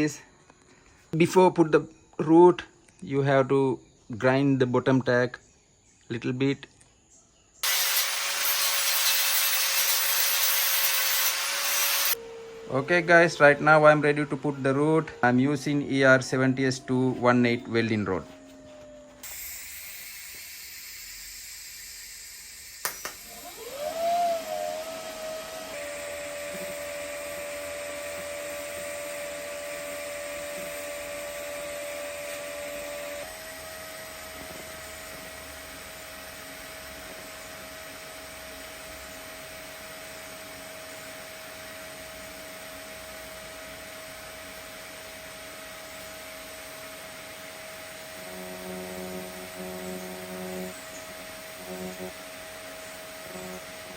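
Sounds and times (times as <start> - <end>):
welding arc hissing buzz: 7.6 - 12.2, 19.2 - 23.7, 25.8 - 53.9
welding arc striking crack: 7.6 - 12.2, 19.2 - 23.3.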